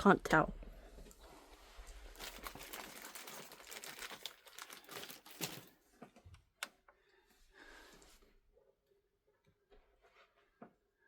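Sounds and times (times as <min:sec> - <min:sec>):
crinkly wrapping rustling: 0:01.0 - 0:05.8.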